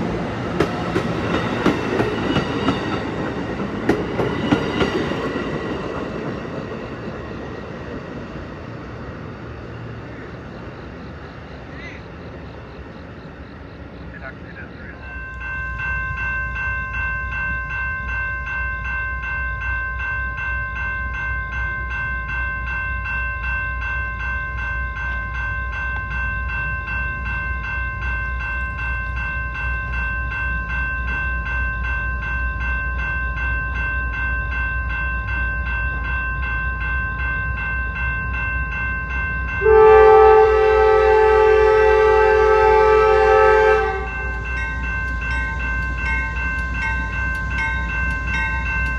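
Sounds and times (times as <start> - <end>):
passing train rumble: 0.0 - 48.9
locomotive horn blast: 39.6 - 44.4.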